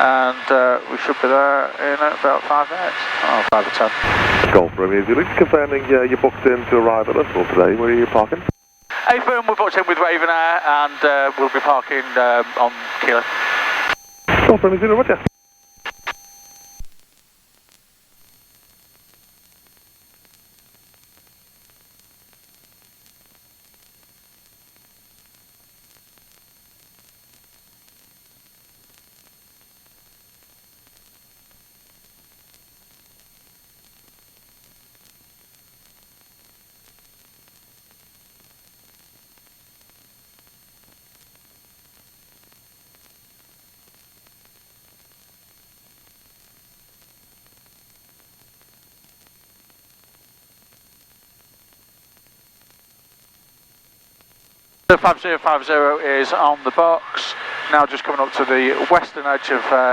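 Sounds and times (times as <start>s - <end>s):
faint low hum: 0.0s - 16.3s
electronic hiss: 0.0s - 16.9s, 54.9s - 59.9s.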